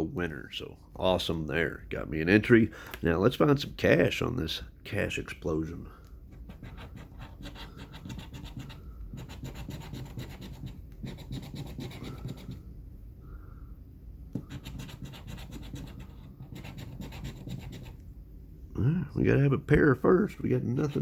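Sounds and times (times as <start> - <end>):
lottery ticket being scratched: 6.4 - 12.6, 14.4 - 18.0, 20.6 - 21.0.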